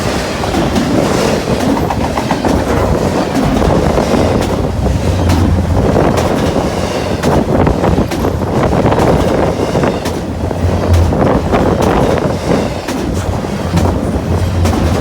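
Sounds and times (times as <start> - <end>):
freight train rushing past: 0.0 - 15.0
wheels clicking over rail joints: 0.0 - 15.0
wind buffeting microphone: 0.0 - 15.0.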